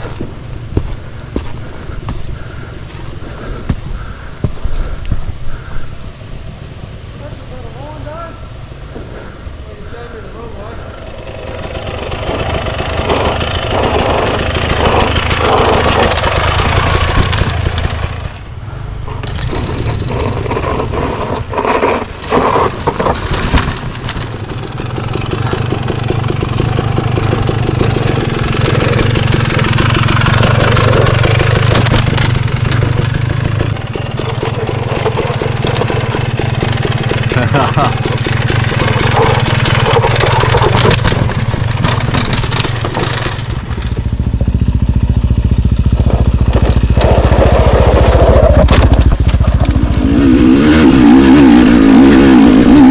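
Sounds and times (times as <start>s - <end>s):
dirt bike engine revving: 10.4s - 52.9s.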